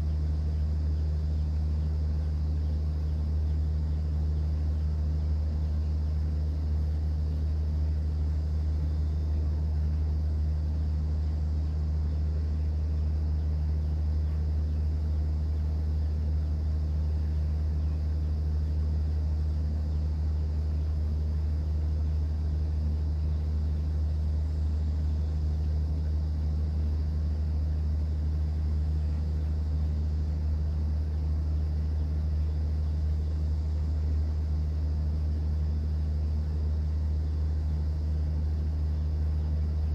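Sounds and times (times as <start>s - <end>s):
boat engine drone: 0.0s - 39.9s.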